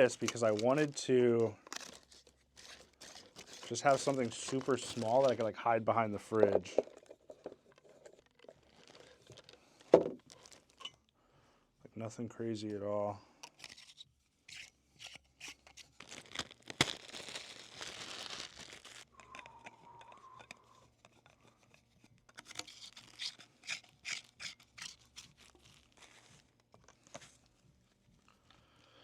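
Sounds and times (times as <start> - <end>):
plastic packaging crinkling: 0.0 - 10.9, 15.4 - 19.6, 22.4 - 27.4.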